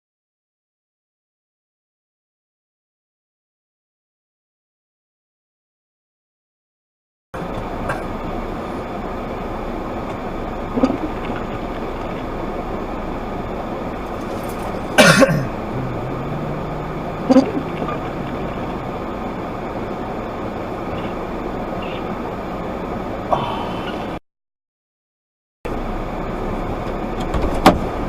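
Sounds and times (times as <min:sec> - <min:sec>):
vehicle and road noise: 0:07.4 - 0:24.2, 0:25.7 - 0:28.0.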